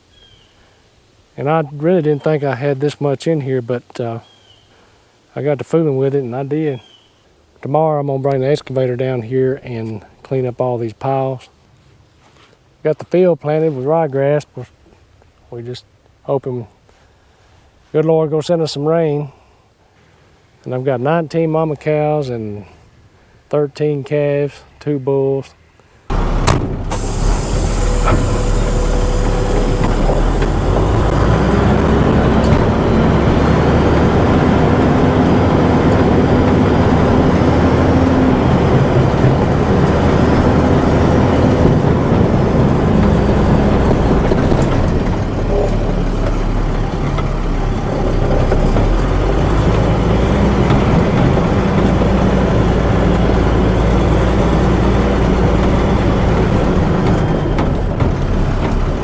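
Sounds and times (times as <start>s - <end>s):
tractor engine working hard: 26.1s - 59.0s.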